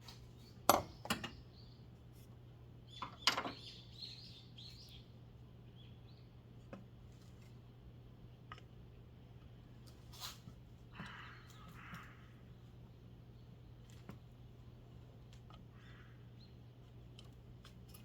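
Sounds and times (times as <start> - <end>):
steady low hum: 3.6 - 18.0.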